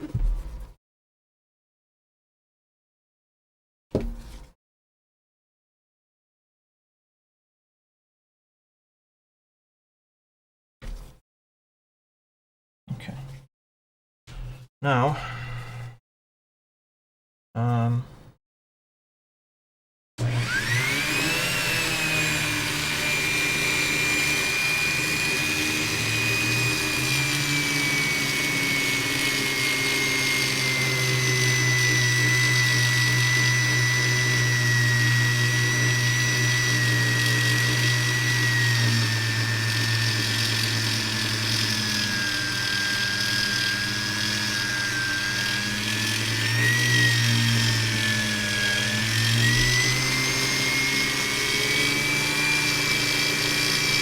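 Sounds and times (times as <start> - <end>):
rotary tool high whine: 20.3 - 54.0.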